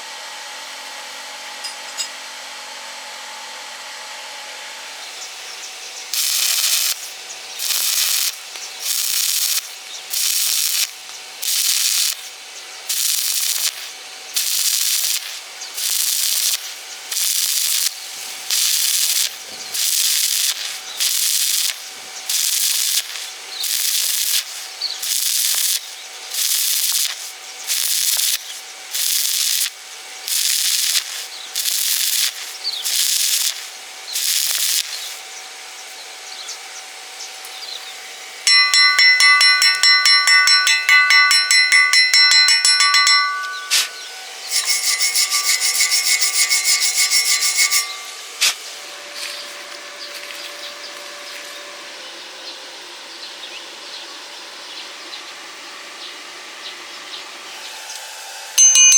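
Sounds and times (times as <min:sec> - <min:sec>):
hand tool rasping strokes: 0:38.5 - 0:48.6.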